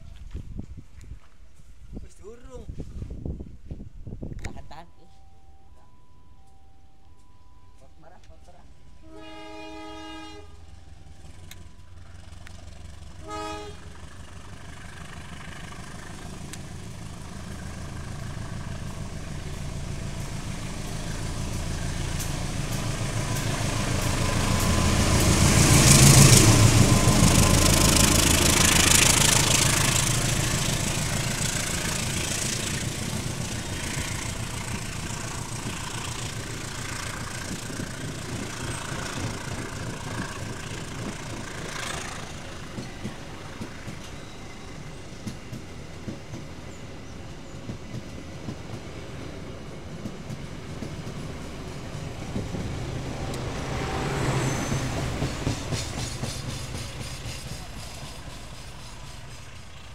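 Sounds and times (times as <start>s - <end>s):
locomotive rumble: 7.0s - 59.9s
train coaches rolling on rails: 7.8s - 59.9s
train horn: 9.0s - 11.0s, 13.2s - 14.1s.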